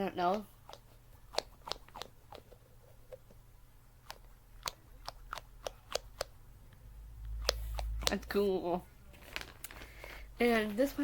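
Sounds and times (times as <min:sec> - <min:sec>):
stress ball squeezed clicking: 0:00.2 - 0:03.4, 0:04.0 - 0:08.3.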